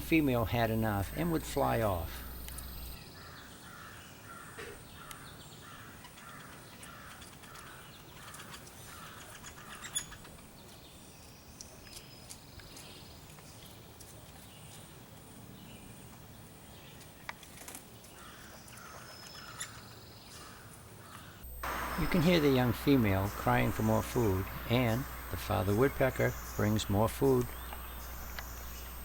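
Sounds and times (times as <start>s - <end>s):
young woodpecker begging calls: 21.1s - 29.0s.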